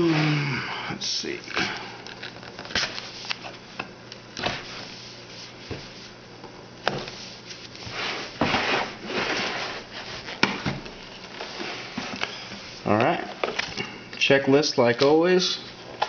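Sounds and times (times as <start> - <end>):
card pack rustling: 1.3 - 3.5.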